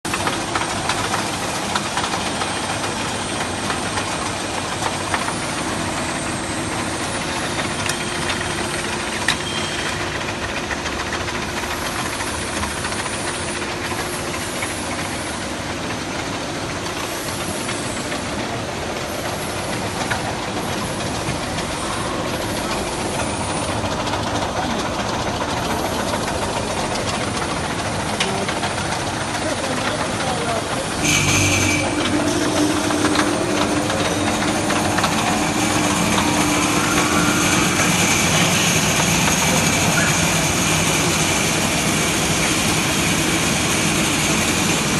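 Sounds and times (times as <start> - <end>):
bandsaw running: 20.8 - 44.9.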